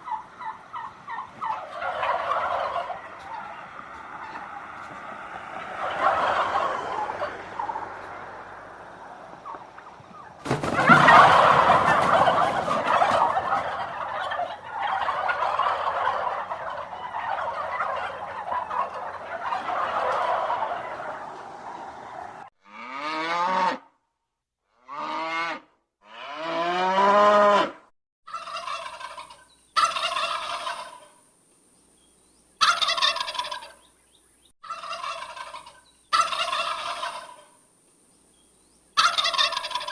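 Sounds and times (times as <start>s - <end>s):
fowl calls bending in pitch: 0.0s - 22.5s, 32.6s - 33.8s, 34.6s - 37.5s, 39.0s - 39.9s
fowl flock calling: 0.0s - 22.5s, 28.3s - 31.2s, 32.6s - 33.9s, 34.6s - 37.6s, 39.0s - 39.9s.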